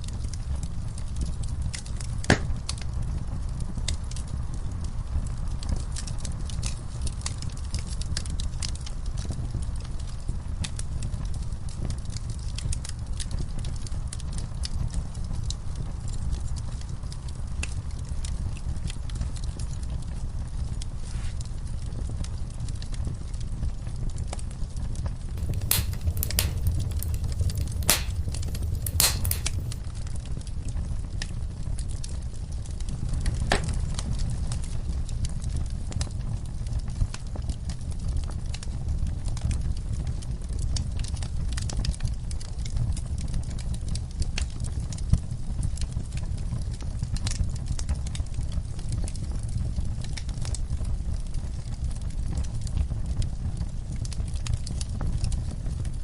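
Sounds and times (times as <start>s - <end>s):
wood fire crackling and popping: 0.0s - 14.9s, 25.4s - 29.9s, 43.0s - 56.0s
wood fire crackling: 25.4s - 29.8s.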